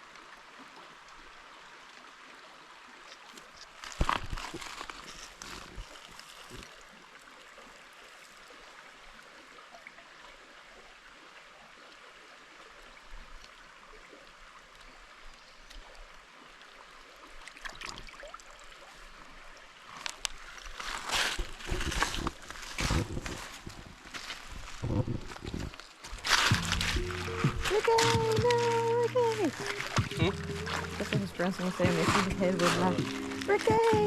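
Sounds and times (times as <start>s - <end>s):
stream running over rocks: 0.0s - 34.0s
scuffs and knocks: 26.1s - 34.0s.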